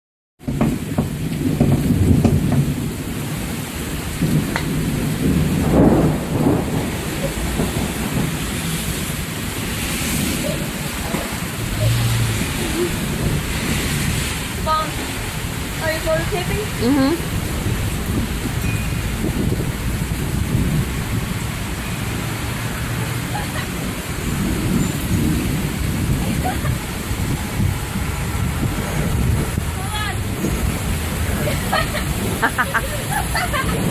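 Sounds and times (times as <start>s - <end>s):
heavy rain falling: 0.4s - 33.9s
low rumble: 4.2s - 22.3s.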